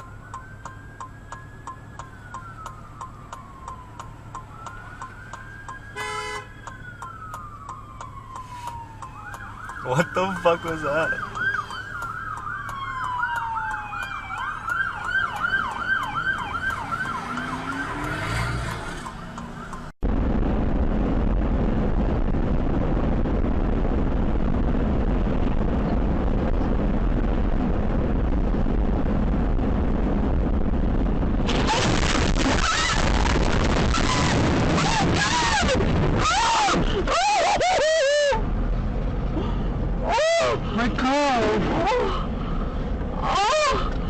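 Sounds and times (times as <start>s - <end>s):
siren in fast yelp: 1.6s - 18.2s, 33.8s - 38.4s, 40.0s - 40.6s, 43.2s - 43.9s.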